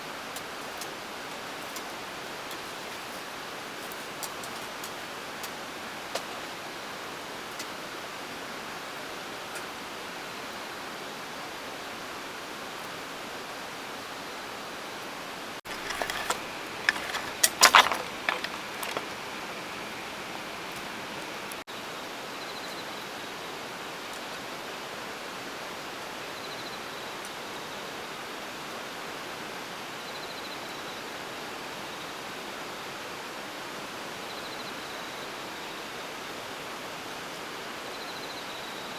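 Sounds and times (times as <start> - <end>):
sharp crackles and clicks: 15.7 - 19.2.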